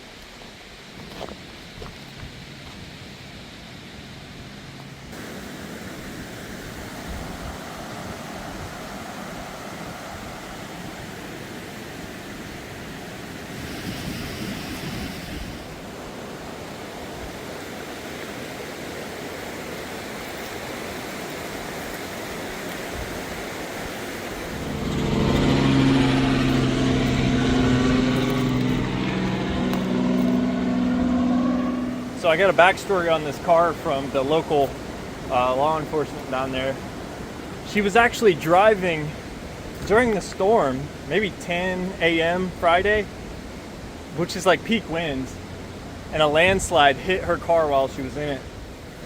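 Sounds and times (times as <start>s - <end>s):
outdoor rushing noise: 23.0s - 41.3s
motor engine humming: 24.3s - 36.2s.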